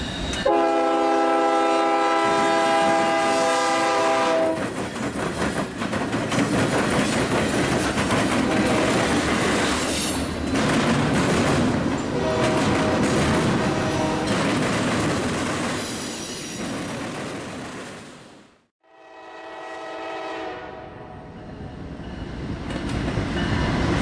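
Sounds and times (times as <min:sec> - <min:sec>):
freight train rumbling past: 0:00.0 - 0:18.4, 0:19.0 - 0:24.0
locomotive air horn chord: 0:00.4 - 0:04.6, 0:12.2 - 0:14.3, 0:18.8 - 0:21.3
wheels clattering over rail joints: 0:04.6 - 0:16.0.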